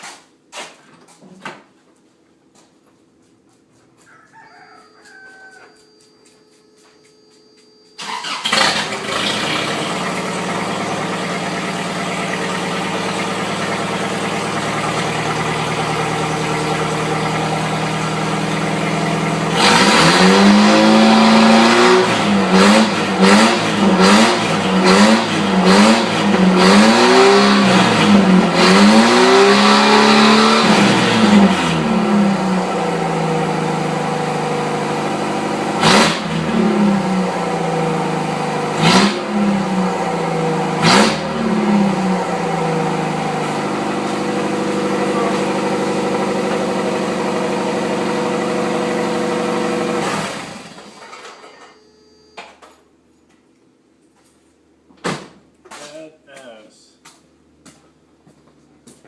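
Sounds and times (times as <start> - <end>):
engine revving in quick blips: 8.0 - 32.8, 33.6 - 50.9
truck engine starting and idling: 8.0 - 51.8.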